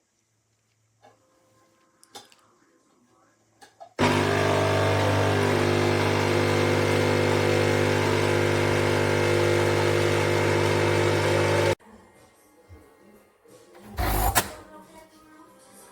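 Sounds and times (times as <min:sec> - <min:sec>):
coffee machine pump buzzing: 0:04.0 - 0:11.8, 0:13.8 - 0:14.7.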